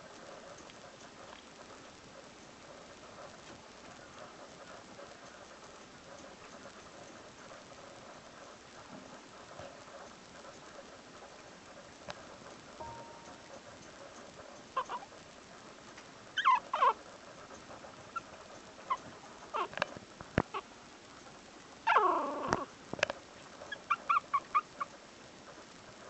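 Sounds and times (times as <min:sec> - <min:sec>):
puppy whimpering and yipping: 0:14.8 - 0:15.0, 0:16.4 - 0:17.0, 0:18.9 - 0:19.7, 0:21.9 - 0:22.7, 0:23.7 - 0:24.8.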